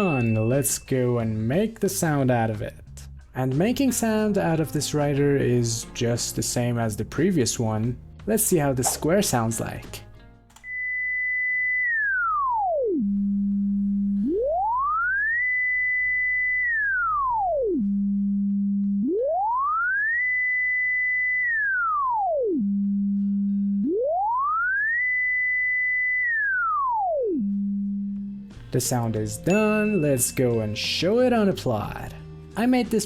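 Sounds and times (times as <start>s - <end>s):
gliding sine tone: 10.7s - 28.4s.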